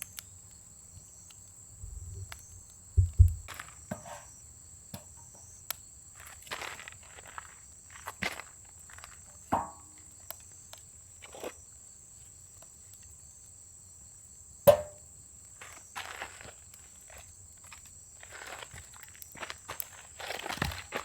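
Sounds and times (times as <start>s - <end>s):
insects droning: 0.0s - 21.0s
firewood knocking on metal: 1.8s - 4.1s, 9.6s - 9.8s, 14.7s - 15.0s
rustling and crunching: 1.8s - 4.2s.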